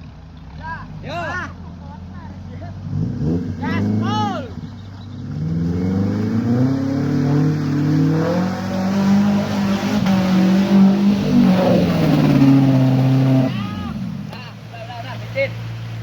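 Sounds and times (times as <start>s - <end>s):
engine revving hard: 2.8s - 4.4s, 5.2s - 14.2s.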